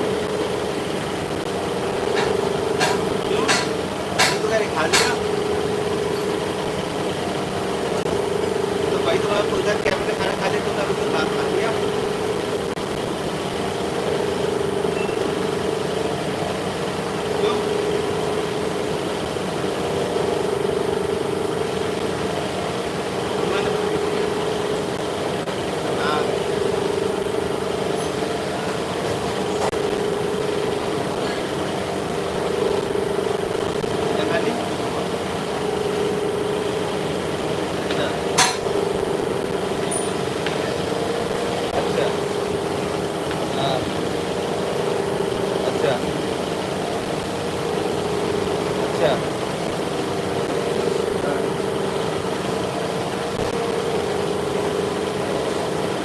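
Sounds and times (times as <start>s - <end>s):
machine humming: 0.0s - 56.0s
sharp metallic clank: 2.1s - 5.3s, 38.4s - 38.7s.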